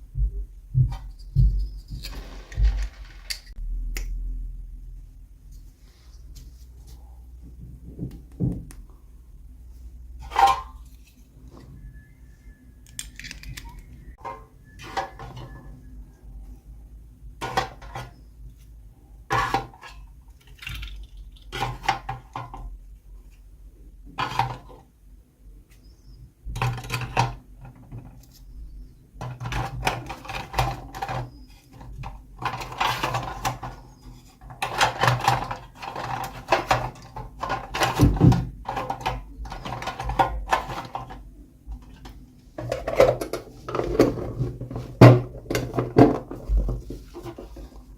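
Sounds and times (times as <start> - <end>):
packaging rustling: 1.7 - 3.6.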